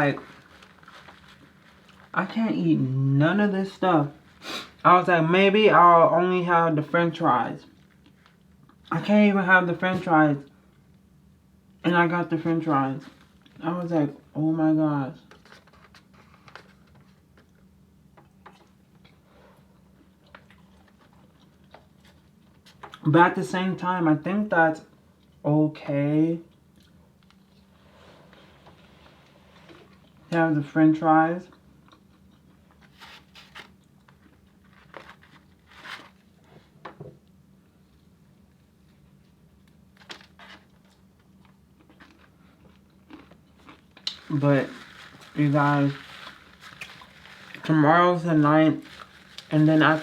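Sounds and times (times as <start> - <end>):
low room hum: 0.0 - 50.0
person chewing: 31.5 - 32.8, 40.8 - 44.3.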